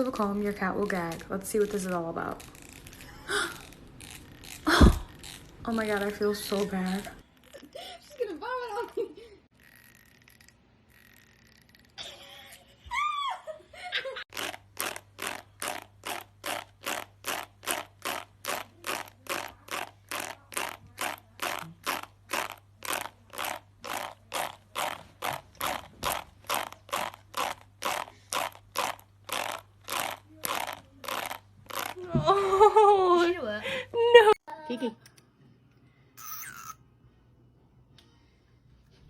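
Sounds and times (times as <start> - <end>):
fingernail scraping comb teeth: 2.3 - 7.6, 9.6 - 12.0, 14.3 - 32.0.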